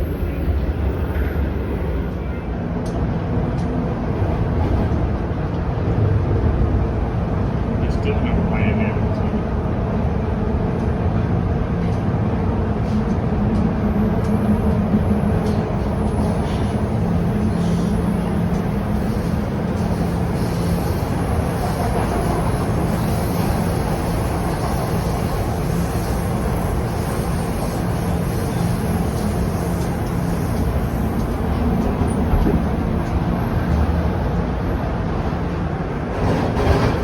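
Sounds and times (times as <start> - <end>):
train wheels rumbling on rail: 0.0 - 37.0.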